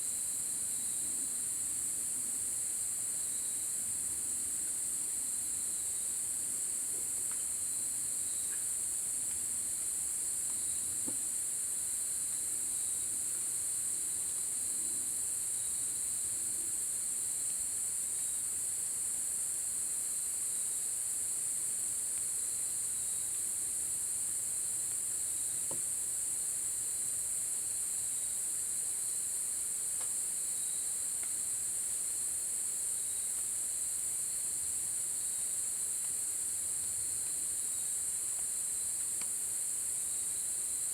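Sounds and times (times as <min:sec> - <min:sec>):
faint ticks: 0:30.0 - 0:30.2, 0:38.2 - 0:39.4.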